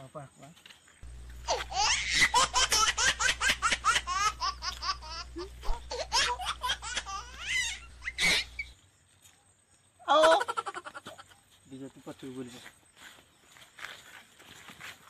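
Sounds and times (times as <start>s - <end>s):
steady low hum: 1.0s - 9.1s
high-pitched laughter: 1.4s - 8.7s, 10.0s - 11.4s.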